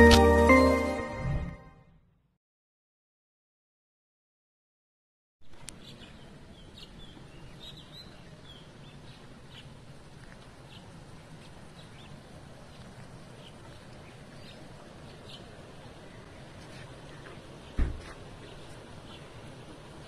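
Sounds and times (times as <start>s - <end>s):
low outdoor rumble: 5.5s - 20.0s.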